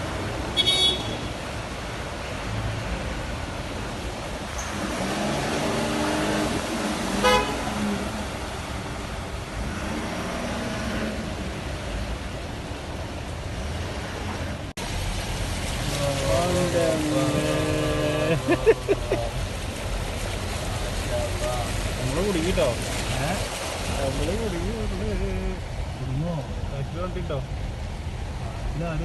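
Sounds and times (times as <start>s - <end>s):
cars moving through water: 0.0s - 29.0s
car horn toot: 0.5s - 1.3s, 7.2s - 7.8s
held car horn tones: 0.6s - 1.3s, 7.2s - 7.9s.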